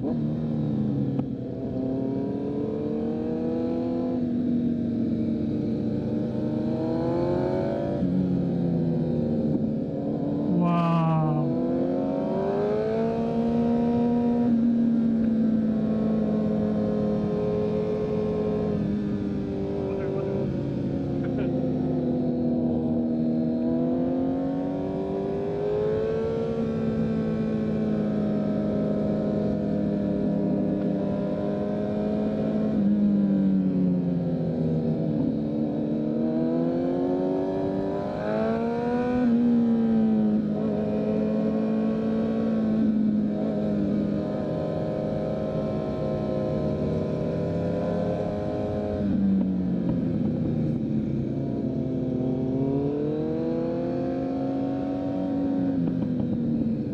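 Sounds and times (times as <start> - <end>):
motorcycle engine cruising: 0.0 - 56.9.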